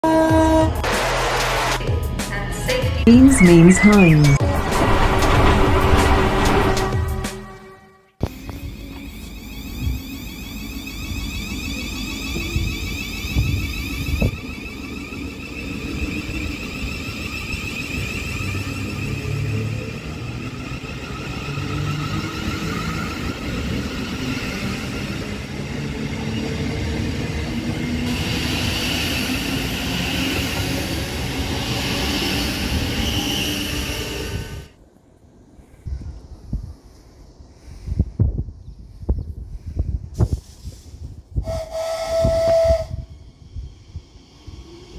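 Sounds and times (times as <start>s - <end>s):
electric train whine: 3.8s - 34.8s, 41.4s - 44.9s
wheel and rail rumble: 4.4s - 37.2s.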